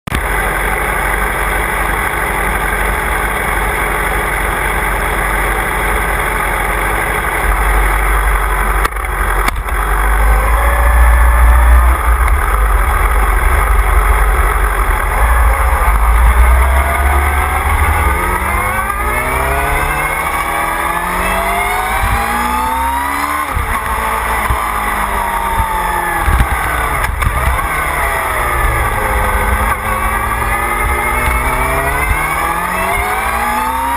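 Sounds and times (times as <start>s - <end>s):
motorcycle engine: 0.1s - 33.9s
low wind rumble: 7.4s - 33.2s.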